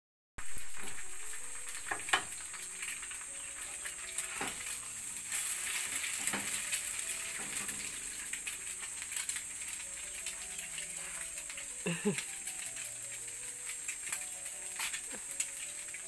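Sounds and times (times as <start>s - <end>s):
food sizzling in a frying pan: 0.4s - 16.0s
spatula scraping and tapping pan: 3.6s - 8.0s.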